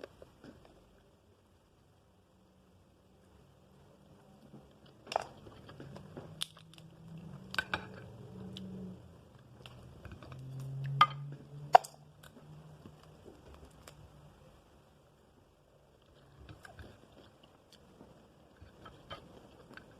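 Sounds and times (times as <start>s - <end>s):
crab shell cracking: 5.0s - 8.0s
person chewing: 16.0s - 19.9s.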